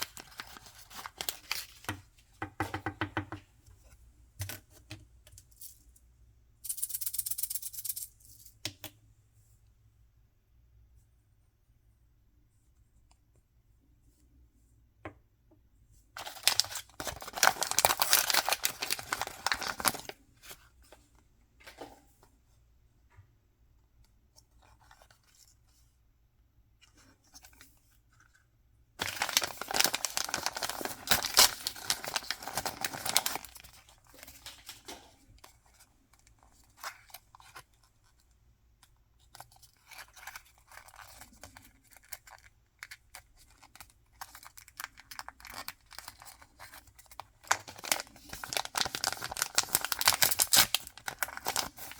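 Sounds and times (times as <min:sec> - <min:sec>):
packaging ripping and rustling: 0:00.0 - 0:01.9, 0:16.2 - 0:20.2, 0:29.0 - 0:34.9, 0:43.7 - 0:51.9.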